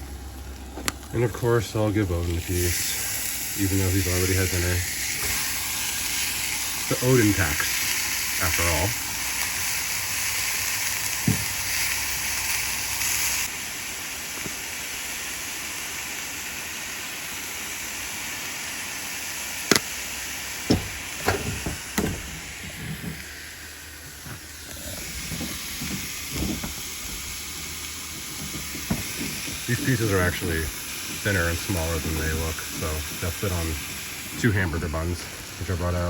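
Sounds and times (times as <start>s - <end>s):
steak and onions sizzling: 0.0s - 36.0s
sharp knocks: 20.7s - 23.2s.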